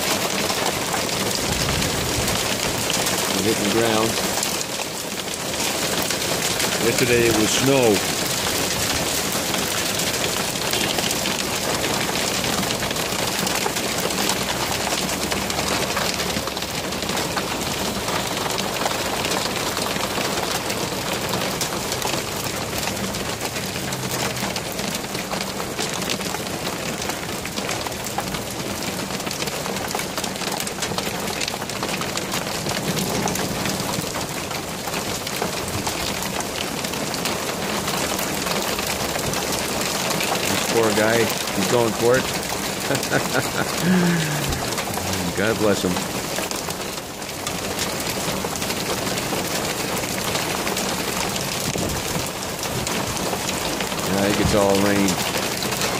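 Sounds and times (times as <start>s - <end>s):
hail and rain pelting down: 0.0s - 55.9s.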